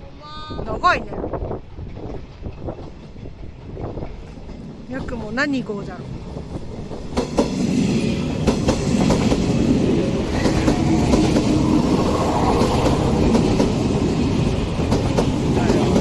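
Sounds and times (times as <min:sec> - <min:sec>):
electric train rumbling past: 0:00.0 - 0:16.0
wheels clacking over rail joints: 0:08.2 - 0:16.0.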